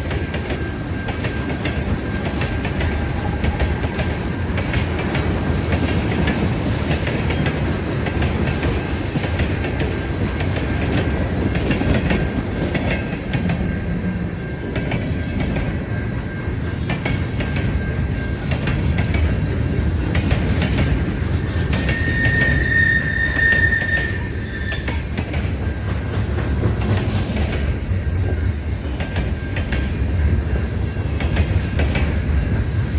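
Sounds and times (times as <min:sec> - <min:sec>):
railway cars rumbling past: 0:00.0 - 0:32.9
high-pitched wheel squeals: 0:12.8 - 0:18.4, 0:21.6 - 0:25.2.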